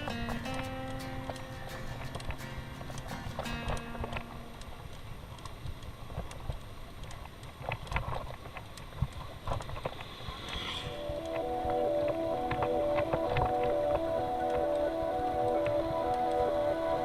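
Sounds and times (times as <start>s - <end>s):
wind and road rumble: 2.1s - 14.6s.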